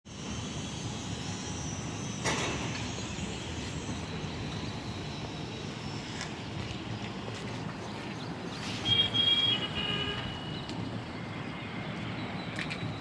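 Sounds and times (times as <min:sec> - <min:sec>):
wind: 0:00.0 - 0:13.0
distant traffic: 0:00.5 - 0:13.0.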